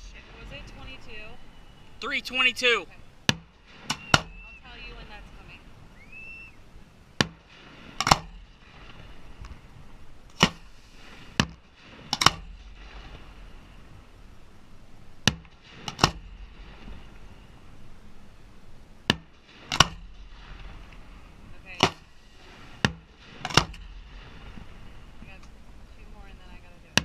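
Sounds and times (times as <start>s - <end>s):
fireworks bangs: 2.0s - 6.4s, 19.2s - 25.4s.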